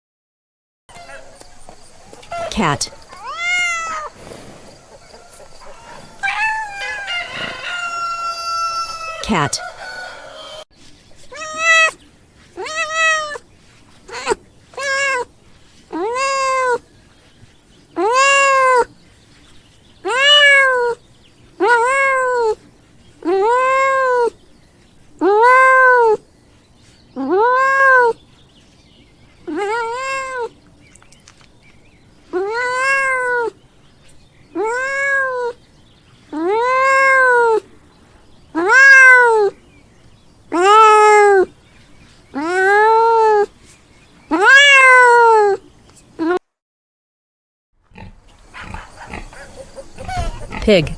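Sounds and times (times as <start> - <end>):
cat meowing: 2.9 - 4.2, 5.6 - 9.5, 11.3 - 12.0, 12.6 - 13.4, 14.1 - 15.3, 15.9 - 16.8, 18.0 - 18.9, 20.1 - 21.0, 21.6 - 22.6, 27.4 - 28.2, 29.5 - 30.5, 32.4 - 33.6, 34.6 - 35.6, 36.4 - 37.6, 38.6 - 39.6, 40.5 - 41.5, 42.4 - 43.5, 44.3 - 45.6.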